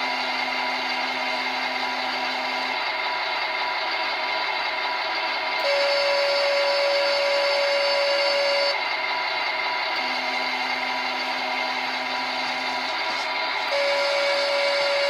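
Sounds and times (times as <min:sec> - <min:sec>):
synthesized engine sound: 0:00.0 - 0:15.0
held electronic tone: 0:05.6 - 0:08.8, 0:10.0 - 0:15.0.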